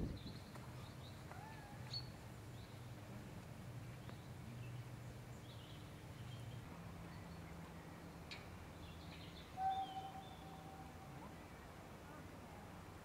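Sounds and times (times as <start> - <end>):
bird chirps and whistled calls: 9.6 - 10.6.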